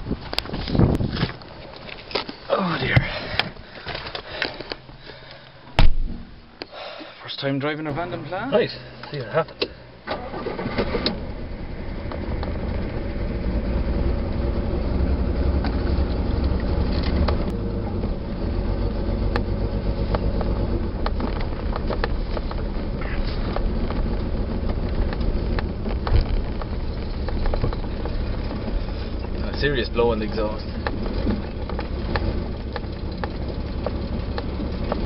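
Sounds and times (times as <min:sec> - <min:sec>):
exhaust blowing: 0:00.0 - 0:35.0
car engine from inside cabin: 0:08.0 - 0:35.0
light knocks and rattles: 0:19.4 - 0:35.0.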